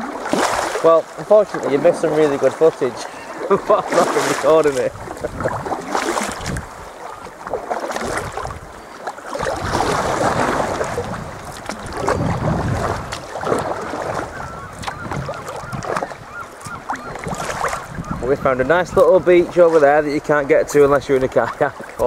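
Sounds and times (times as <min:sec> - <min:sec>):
water splashing around a kayak: 0:00.0 - 0:22.0
wind buffeting the microphone: 0:04.2 - 0:19.6.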